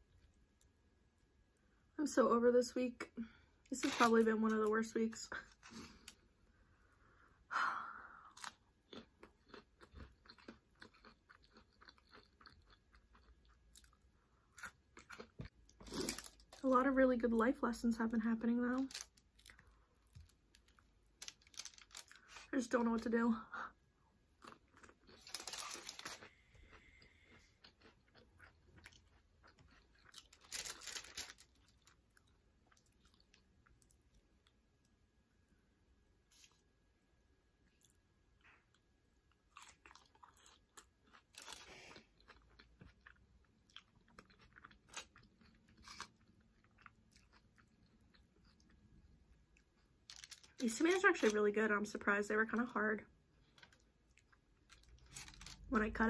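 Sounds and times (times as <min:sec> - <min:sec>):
crunching and chewing chips: 0:03.3 - 0:06.3, 0:08.3 - 0:23.0, 0:23.6 - 0:34.6, 0:36.3 - 0:36.7, 0:37.6 - 0:51.4, 0:53.3 - 0:56.0.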